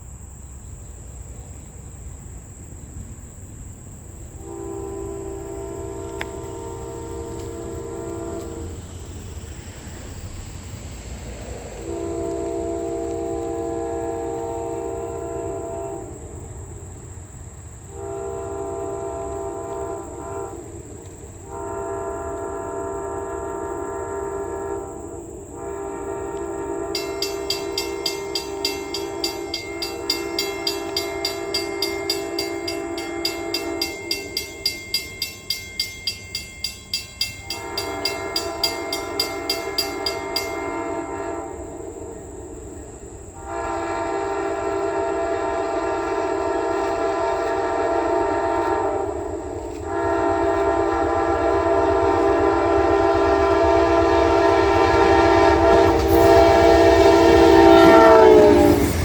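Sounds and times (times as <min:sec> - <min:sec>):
locomotive air horn blasts: 0:04.4 - 0:08.9, 0:11.8 - 0:16.2, 0:17.9 - 0:20.8, 0:21.4 - 0:41.9, 0:43.4 - 0:59.0
bell ringing fast: 0:27.0 - 0:41.1.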